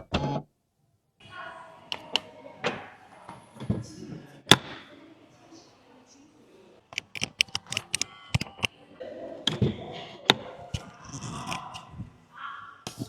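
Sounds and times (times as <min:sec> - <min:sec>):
sharp clicks and taps: 0:06.9 - 0:08.7, 0:10.3 - 0:11.8.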